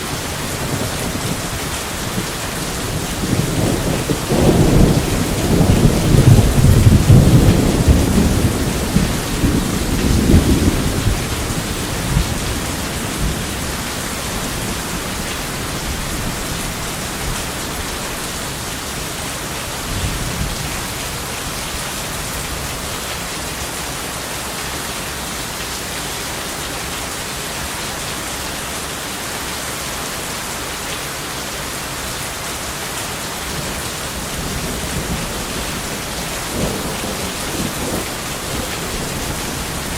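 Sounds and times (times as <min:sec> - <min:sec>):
heavy rain: 0:00.0 - 0:39.9
rolling thunder: 0:00.4 - 0:18.0, 0:33.5 - 0:39.9.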